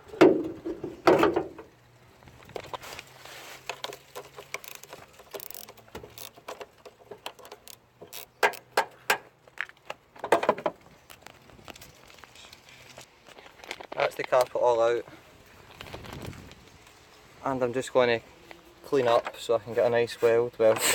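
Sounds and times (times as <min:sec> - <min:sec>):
small hard parts clicking: 0:01.2 - 0:14.6.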